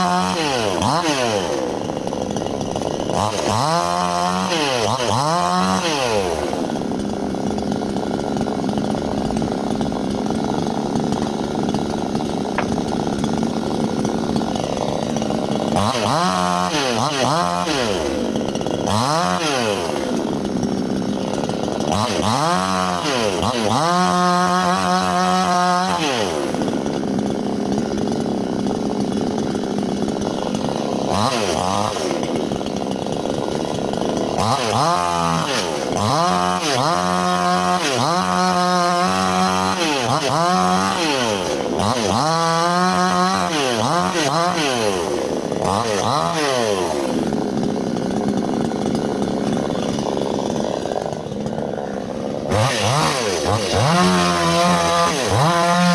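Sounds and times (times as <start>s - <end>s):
chainsaw revving cutting wood: 0.0s - 55.9s.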